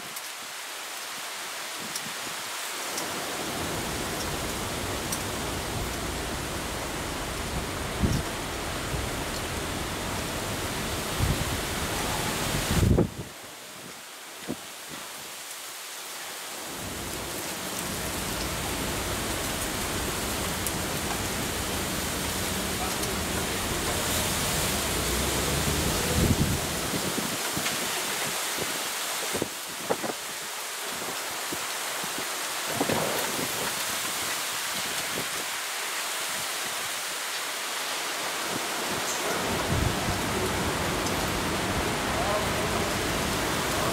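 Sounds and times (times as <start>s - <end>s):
rain hissing: 0.0s - 43.9s
low thunder rumble: 24.9s - 27.2s.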